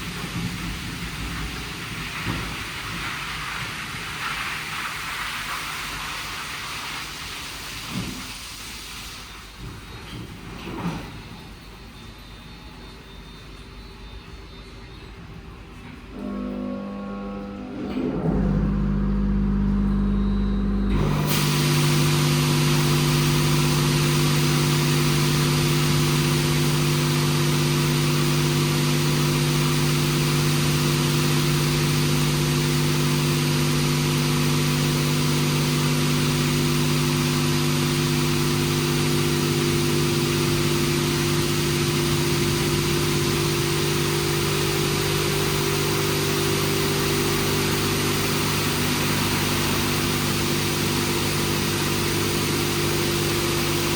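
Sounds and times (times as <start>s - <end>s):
pump and motors humming: 0.0s - 53.9s
water spray hissing: 21.2s - 53.9s.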